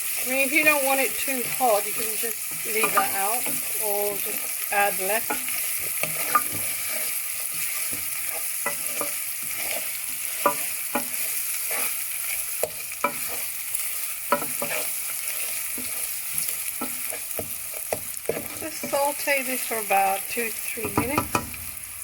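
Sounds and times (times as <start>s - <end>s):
spoon scraping a pan: 0.0s - 21.6s
spices sizzling in hot oil: 0.0s - 22.0s.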